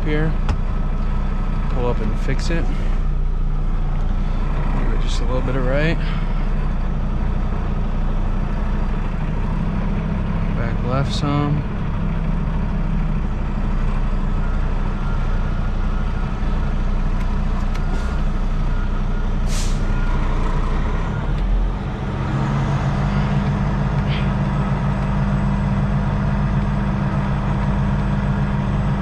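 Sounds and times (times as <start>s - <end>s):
diesel truck engine running: 0.0s - 29.0s
air brake hiss: 19.4s - 19.9s.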